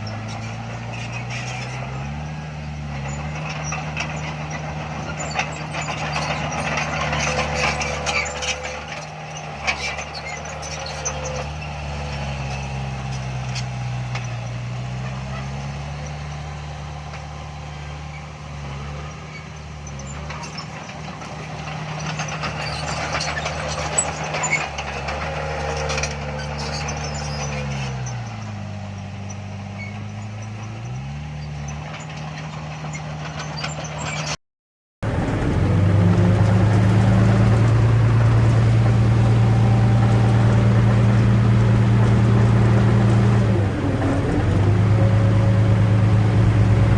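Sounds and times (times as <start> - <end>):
heavy diesel engines running: 0.0 - 34.4, 35.0 - 46.9
metal clanks: 3.0 - 34.4.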